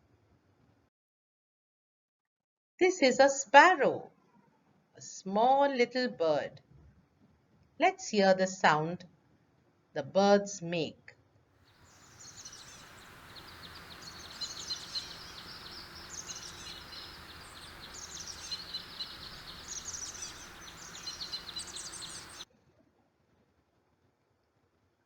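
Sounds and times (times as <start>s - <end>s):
outdoor background hiss: 11.8s - 22.5s
sparrows chirping: 11.9s - 22.4s.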